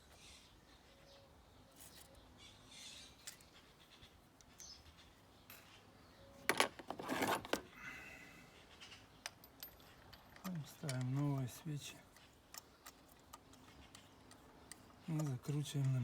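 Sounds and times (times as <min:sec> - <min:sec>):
faint scattered clicks: 0:08.8 - 0:16.0
sharp metallic clinks and rattles: 0:09.2 - 0:16.0.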